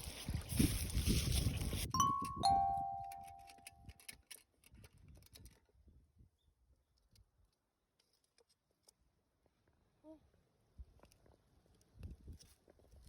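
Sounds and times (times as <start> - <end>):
bell-like tone ringing: 2.0 - 3.7.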